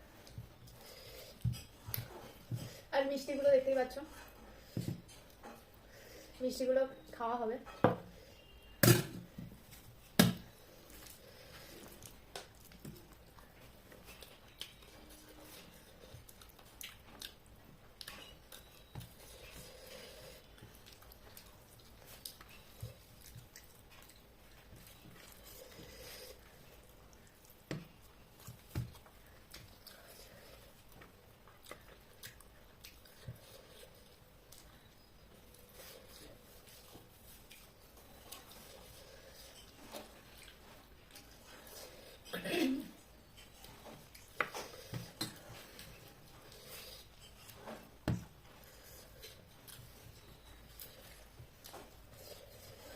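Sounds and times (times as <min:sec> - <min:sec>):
person chewing: 0:10.5 - 0:42.3, 0:43.0 - 0:52.9.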